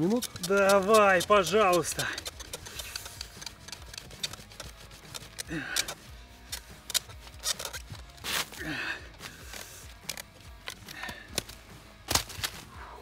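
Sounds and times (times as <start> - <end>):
wooden spindle scraping: 0.0 - 8.6.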